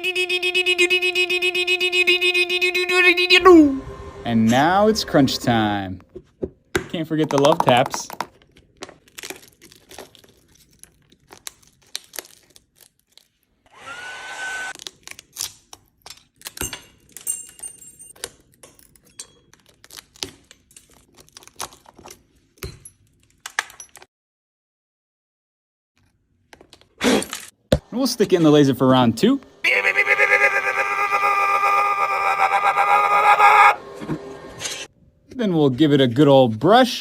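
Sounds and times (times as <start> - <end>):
small blower whining: 0.0 - 5.8, 13.7 - 14.8, 29.6 - 34.9
tools tapping on cracked glass: 16.0 - 24.1.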